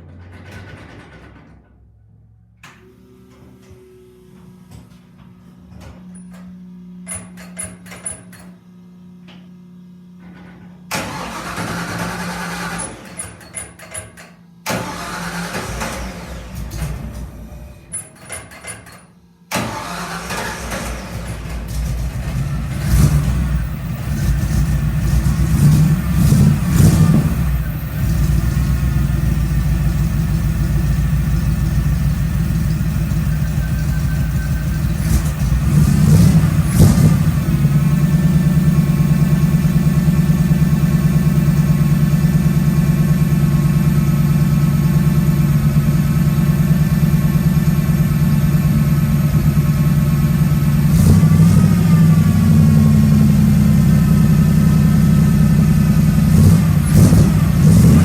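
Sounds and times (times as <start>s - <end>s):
car engine idling and revving: 14.6s - 17.9s, 19.5s - 58.0s.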